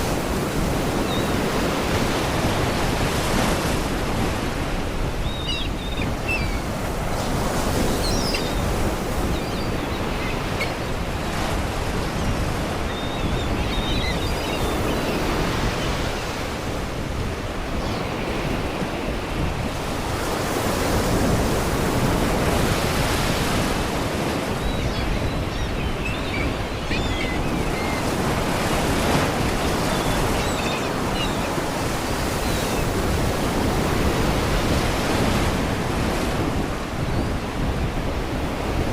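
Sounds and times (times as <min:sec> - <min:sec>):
wind: 0:00.0 - 0:38.9
seagulls crying: 0:03.9 - 0:16.6, 0:17.2 - 0:21.1, 0:23.5 - 0:34.2.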